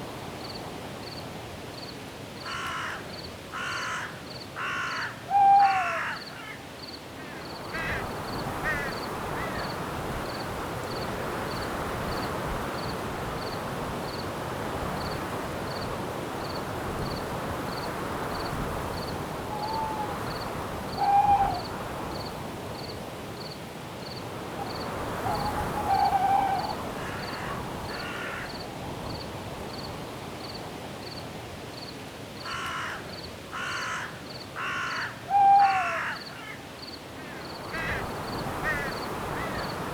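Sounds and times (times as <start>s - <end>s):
wind through trees: 0.0s - 39.9s
harsh cawing bird calls: 2.4s - 6.6s, 7.2s - 9.7s, 25.3s - 28.6s, 32.4s - 36.6s, 37.2s - 39.8s
owl hooting: 5.3s - 6.2s, 19.5s - 20.3s, 20.9s - 21.7s, 25.2s - 27.6s, 35.0s - 36.2s.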